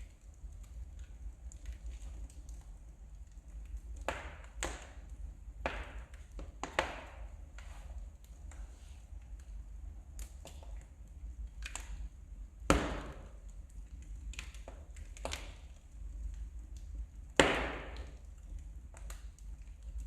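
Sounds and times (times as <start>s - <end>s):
wood fire crackling: 0.0s - 20.0s
loud fire pops with hiss: 3.6s - 8.9s, 11.5s - 15.8s, 17.2s - 18.3s.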